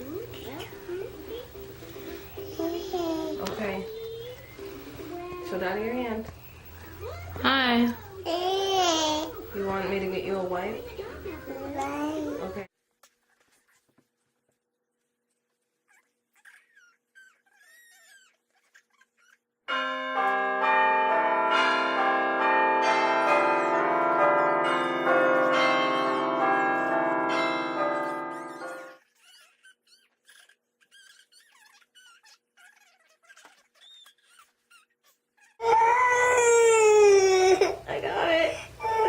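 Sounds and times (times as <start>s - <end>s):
faint high squeaks: 15.8s - 19.4s, 28.9s - 35.6s
bells chiming: 19.7s - 29.0s.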